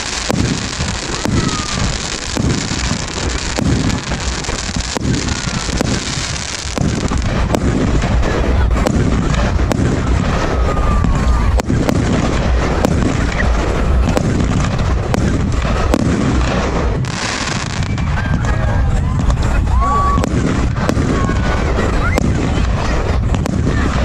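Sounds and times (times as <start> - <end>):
firework crackling hiss: 0.0 - 24.0
firework cracks: 0.0 - 24.0
low firework booming: 0.0 - 24.0.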